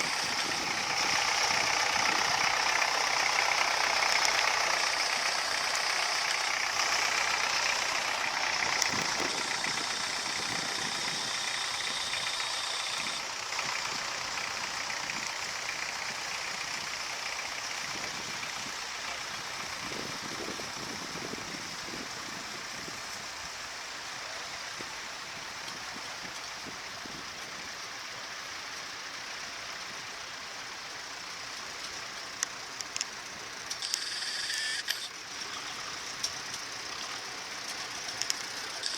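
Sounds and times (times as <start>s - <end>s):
tractor engine running: 0.0s - 38.9s
short clicks: 33.7s - 35.2s, 38.2s - 38.9s.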